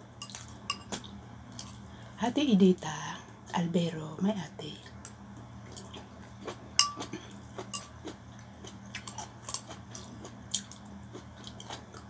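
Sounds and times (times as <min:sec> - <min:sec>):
person chewing noodles: 0:05.6 - 0:12.0.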